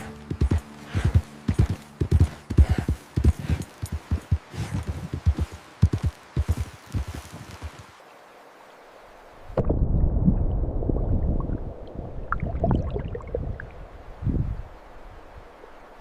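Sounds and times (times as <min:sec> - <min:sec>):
faint steady hiss: 0:00.0 - 0:10.0, 0:11.4 - 0:16.0
water gurgling and sloshing: 0:09.3 - 0:15.0
low rumble: 0:09.6 - 0:14.7
bubbling blips: 0:10.3 - 0:13.7.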